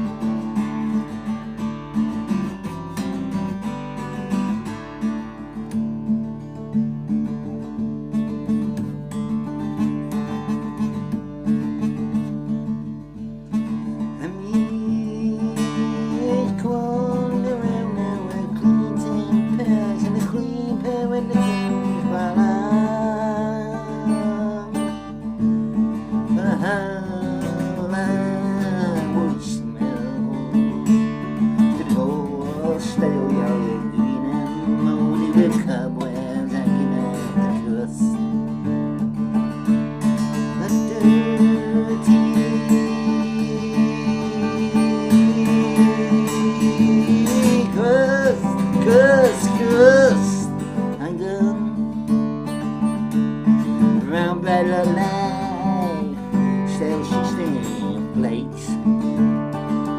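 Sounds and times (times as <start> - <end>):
acoustic guitar strumming: 0.0 - 59.9
person singing: 14.2 - 25.0, 31.7 - 38.2, 40.3 - 51.9, 54.0 - 58.8.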